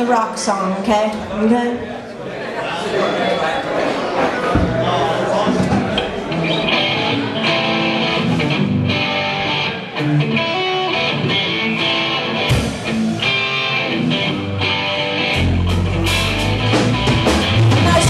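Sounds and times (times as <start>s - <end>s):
electric guitar notes and chords: 5.4s - 18.0s
live rock band: 5.4s - 18.0s.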